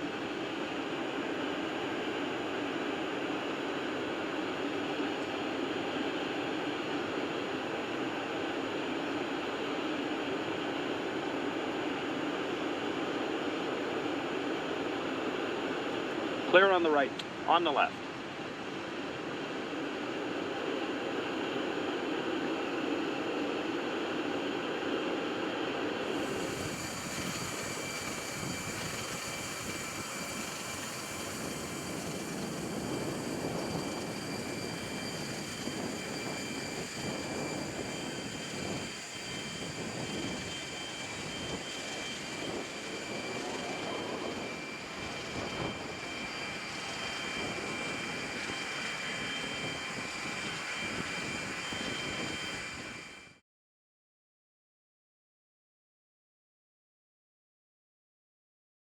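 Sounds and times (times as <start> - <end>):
jet engines running: 0.0 - 53.4
high whining tones: 26.1 - 53.4.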